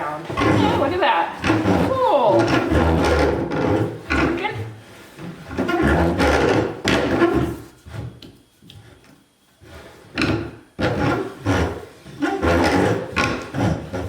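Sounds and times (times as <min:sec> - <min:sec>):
rubber tire scraping on wheel rim: 0:00.3 - 0:08.2, 0:10.8 - 0:14.0.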